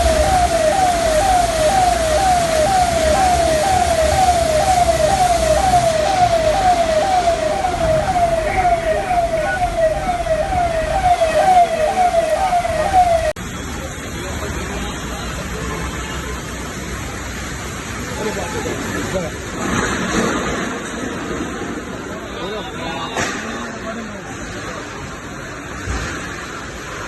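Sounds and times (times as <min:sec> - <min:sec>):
emergency vehicle siren yelping: 0:00.0 - 0:13.4
street noise: 0:00.0 - 0:27.0.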